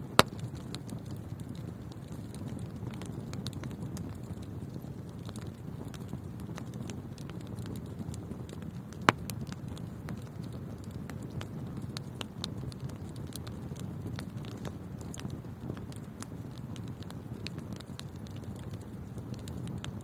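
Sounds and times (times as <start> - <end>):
fire crackling: 0.0 - 20.0
fireplace flames rumbling: 0.0 - 20.0
loud wood pop: 0.2 - 0.4.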